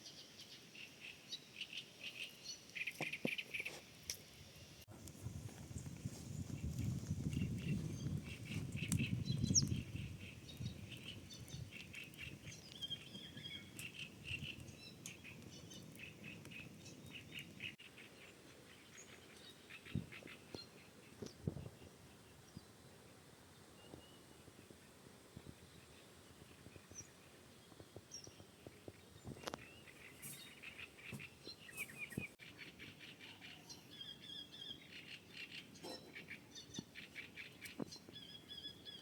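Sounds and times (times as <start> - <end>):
small birds chirping: 0.0 - 4.8, 5.6 - 39.0.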